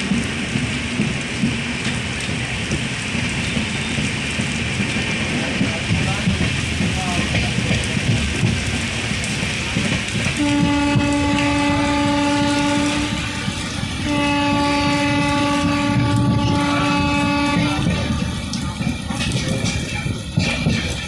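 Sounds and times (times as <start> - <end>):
moving train rumble: 0.0 - 21.0
train horn blasts: 10.4 - 18.6.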